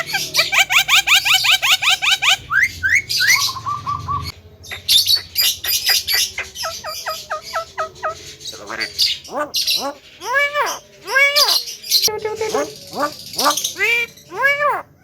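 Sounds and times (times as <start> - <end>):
myna calling: 0.0 - 15.0
upward whistled glides: 2.5 - 4.4.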